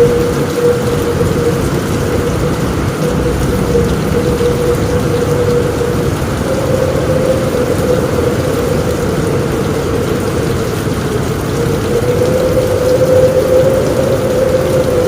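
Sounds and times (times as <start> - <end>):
low rumble: 0.0 - 15.0
rain on a roof: 0.0 - 15.0
wavering mid-pitched hum: 0.0 - 15.0.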